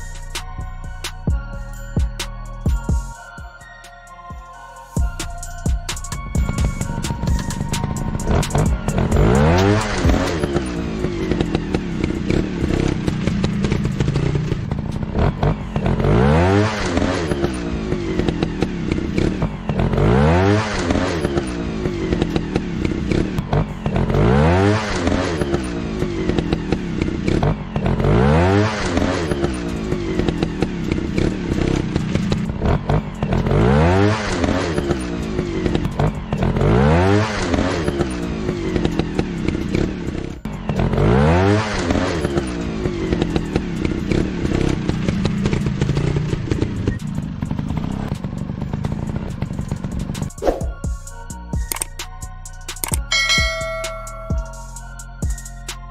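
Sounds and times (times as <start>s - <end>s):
motorcycle engine revving: 5.0s - 52.0s, 52.8s - 55.9s
clattering clicks: 51.6s - 52.0s, 52.7s - 53.1s.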